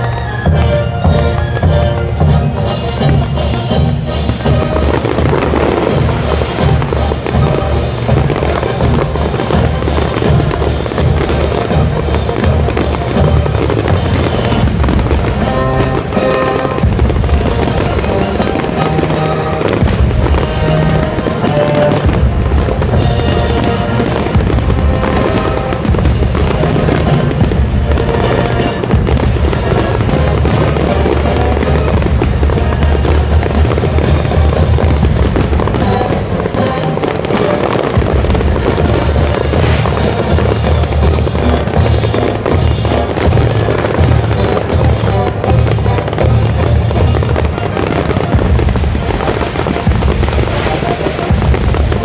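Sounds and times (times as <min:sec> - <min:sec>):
fireworks bangs: 0:00.0 - 0:52.0
music playing: 0:00.0 - 0:52.0.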